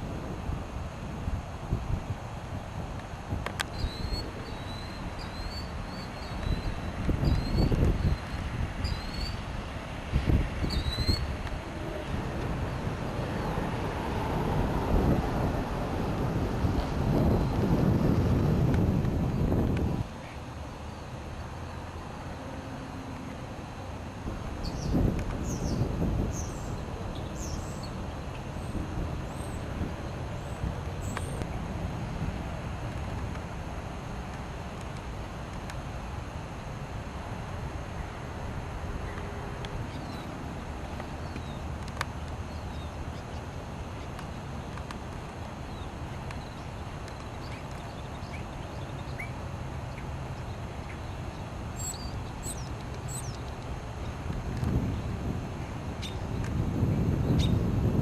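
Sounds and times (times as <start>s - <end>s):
small birds chirping: 3.6s - 9.4s, 10.6s - 11.3s, 24.6s - 29.6s, 45.6s - 54.2s
sharp high bird calls: 3.7s - 9.4s, 10.6s - 11.3s
steady low rumble: 6.5s - 34.5s.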